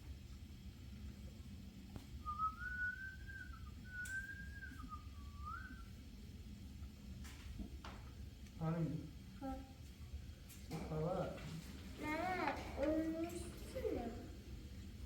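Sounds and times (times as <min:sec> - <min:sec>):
person whistling a tune: 0:02.2 - 0:05.9.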